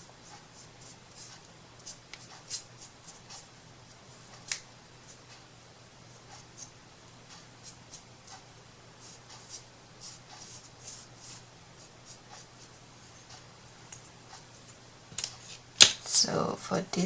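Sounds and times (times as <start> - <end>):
scratching strokes on paper: 0.0 - 3.5, 6.1 - 14.8.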